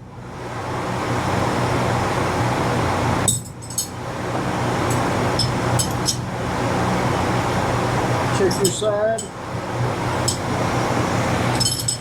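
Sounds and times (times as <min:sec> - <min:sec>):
hand tools clinking on metal: 0:03.3 - 0:04.0, 0:08.6 - 0:09.3, 0:11.6 - 0:12.0.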